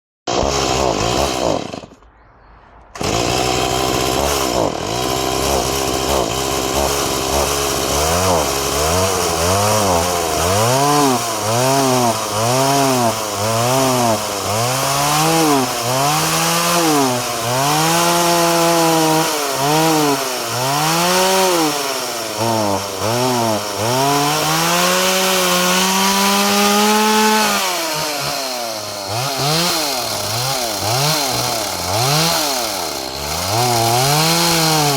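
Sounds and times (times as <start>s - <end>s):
chainsaw revving: 0.3s - 2.0s, 3.0s - 34.9s.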